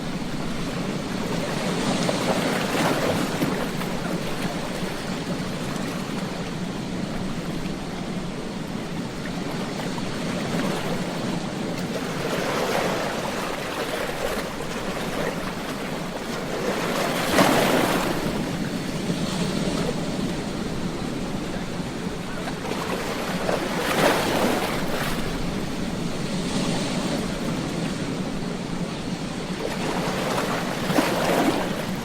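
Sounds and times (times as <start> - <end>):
waves breaking on beach: 0.0 - 32.0.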